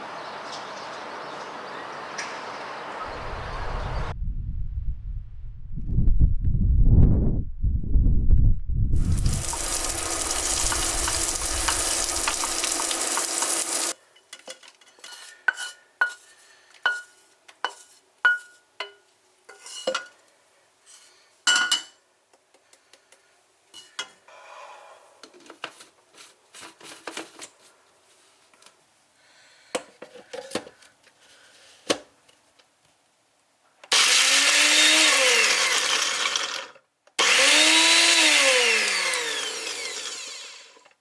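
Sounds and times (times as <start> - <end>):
tap water gushing: 9.0 - 14.0
spoon clinking against dish: 17.7 - 20.1.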